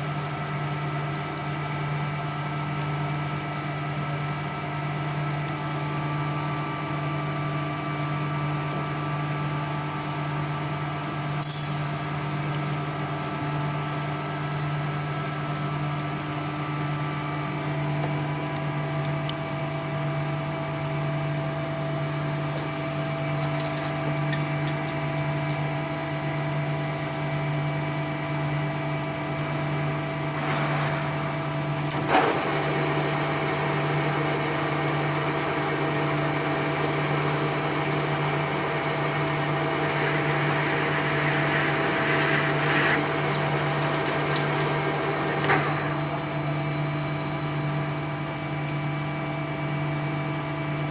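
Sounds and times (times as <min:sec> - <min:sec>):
sharp click: 0:11.4 - 0:12.2
machine humming: 0:22.1 - 0:27.5, 0:39.0 - 0:48.8.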